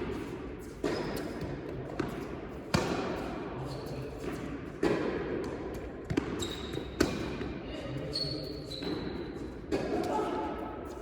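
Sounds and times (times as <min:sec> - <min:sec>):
tennis balls bouncing on court: 0:00.1 - 0:03.3, 0:04.2 - 0:07.5
tennis balls struck by rackets: 0:00.1 - 0:03.3, 0:04.2 - 0:07.5.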